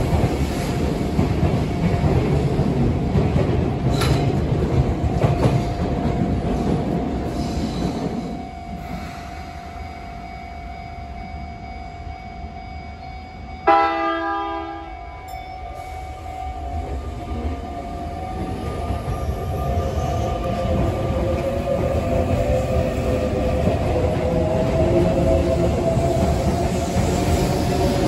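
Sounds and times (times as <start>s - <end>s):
train wheel rumble: 0.0s - 12.0s, 13.6s - 28.0s
train horn blast: 13.6s - 15.2s.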